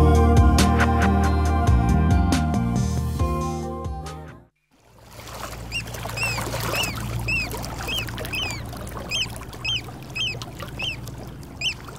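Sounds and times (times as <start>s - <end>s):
music: 0.0s - 4.6s
bird chirping: 5.7s - 11.9s.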